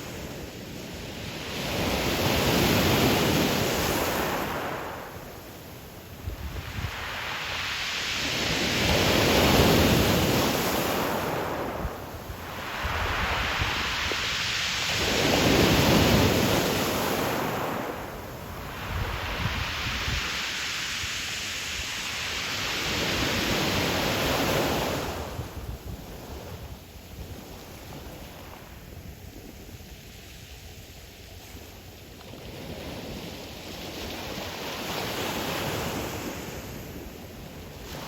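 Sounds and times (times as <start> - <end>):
ocean surf breaking on shore: 0.0 - 25.6, 34.1 - 38.0.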